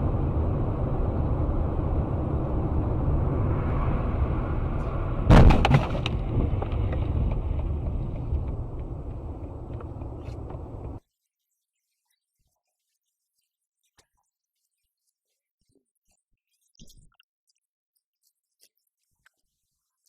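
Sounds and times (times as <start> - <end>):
car road and engine rumble: 0.0 - 11.0
collision crash bang: 5.2 - 7.8.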